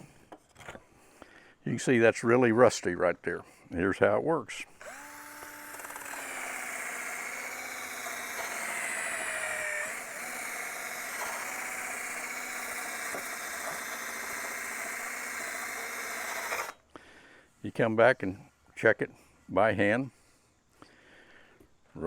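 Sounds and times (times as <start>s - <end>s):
power tool stripping wheel on metal: 4.8s - 16.8s.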